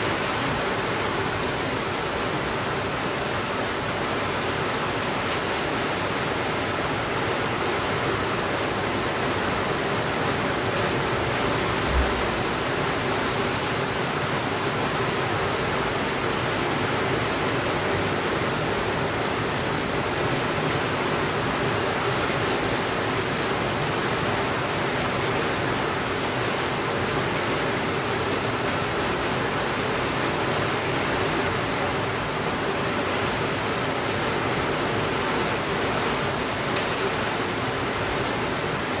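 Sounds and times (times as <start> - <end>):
steady rainfall: 0.0 - 39.0
low thump: 11.7 - 12.7.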